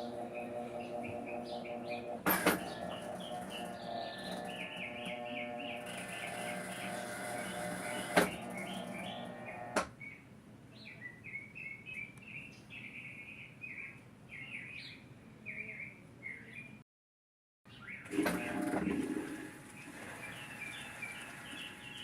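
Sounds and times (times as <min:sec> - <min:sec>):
steady mechanical hum: 0:00.0 - 0:09.9, 0:18.0 - 0:22.0
small birds chirping: 0:00.0 - 0:16.8, 0:17.7 - 0:18.1, 0:19.8 - 0:22.0.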